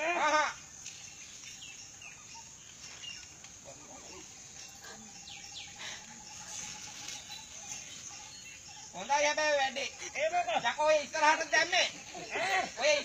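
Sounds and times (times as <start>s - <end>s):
bird chirps: 0.6s - 10.2s.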